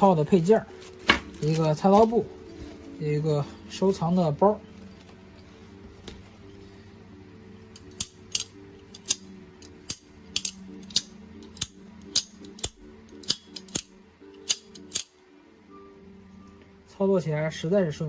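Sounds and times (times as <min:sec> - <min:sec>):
quiet background music: 0:00.0 - 0:18.0
folding knife clicking: 0:07.8 - 0:15.2.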